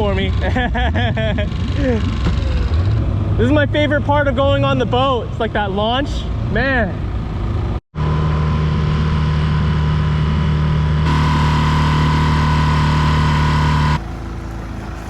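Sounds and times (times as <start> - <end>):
outboard motor running: 8.0 - 15.0.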